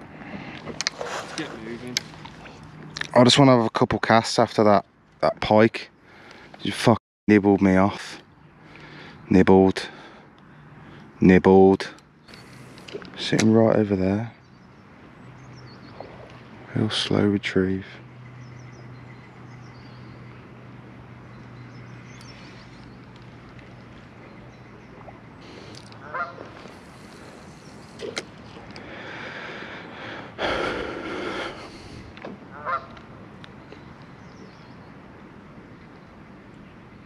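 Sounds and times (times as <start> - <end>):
geese honking: 26.0 - 27.4, 32.5 - 33.0.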